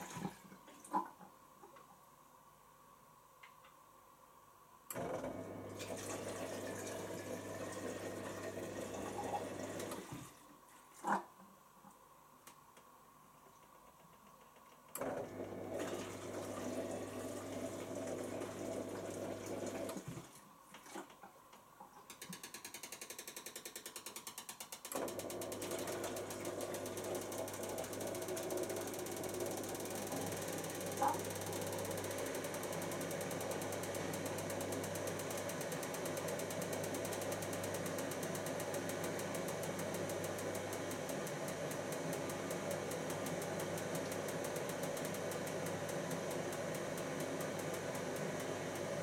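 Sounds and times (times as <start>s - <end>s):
dishwasher drain pump humming: 4.9s - 10.4s, 14.9s - 20.3s, 24.9s - 49.0s.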